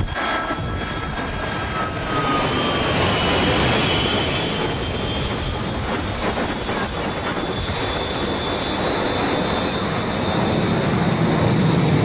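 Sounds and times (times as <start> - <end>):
airplane engine rushing: 0.0 - 12.0.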